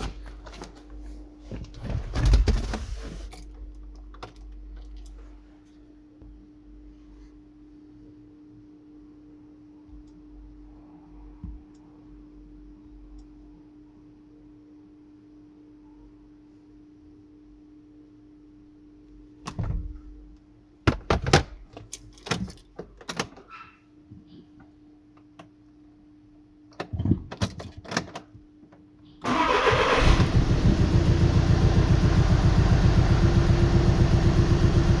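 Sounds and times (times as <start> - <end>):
faint steady hum: 2.7 - 20.8
car engine cranking and running: 29.3 - 35.0.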